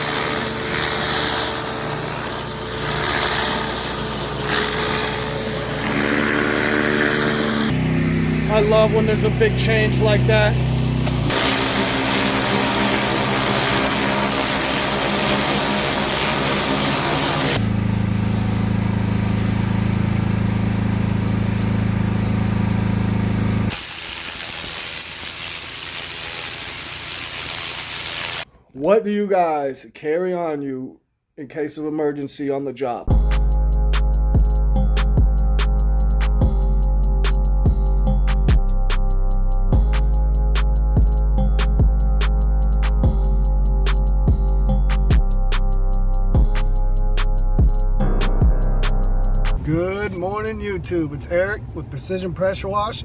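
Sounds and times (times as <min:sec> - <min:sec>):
high-pressure water spray hiss: 0:00.0 - 0:07.7, 0:11.1 - 0:28.5
pressure washer engine running: 0:00.0 - 0:28.4.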